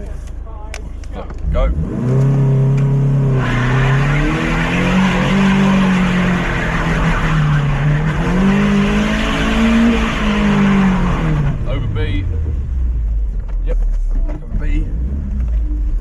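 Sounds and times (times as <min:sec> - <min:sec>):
car engine revving hard: 0:01.4 - 0:12.8.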